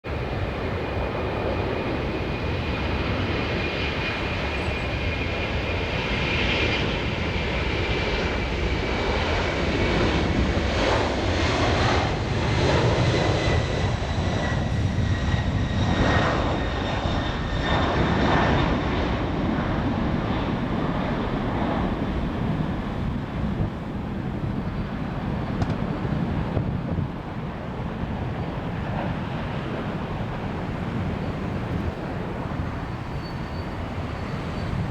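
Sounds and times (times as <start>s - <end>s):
jet engines roaring at takeoff: 0.0s - 34.9s
high engine whine: 28.5s - 34.9s.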